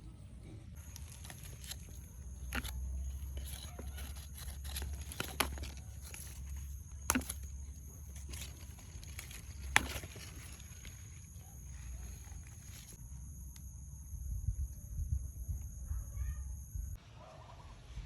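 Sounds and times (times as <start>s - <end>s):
plant stems snapping: 0.8s - 13.0s.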